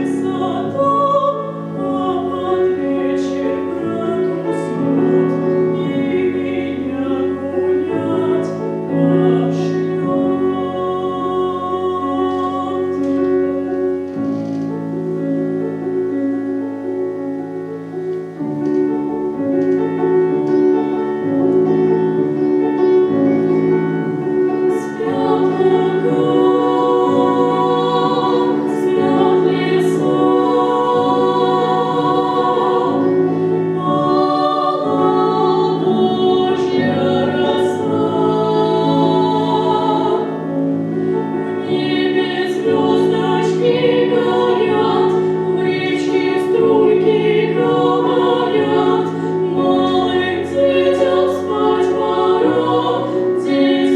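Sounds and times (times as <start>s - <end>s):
women singing a duet: 0.0s - 13.6s, 24.7s - 40.8s, 41.4s - 53.9s
piano accompaniment: 0.0s - 53.9s.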